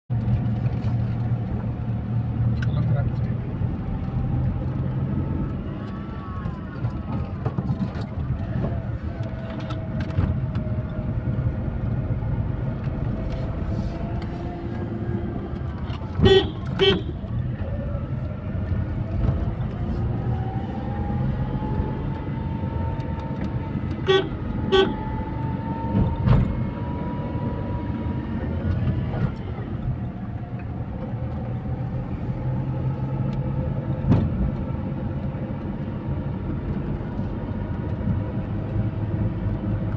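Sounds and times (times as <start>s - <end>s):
car horn double toots: 16.2s - 17.2s, 24.0s - 25.1s.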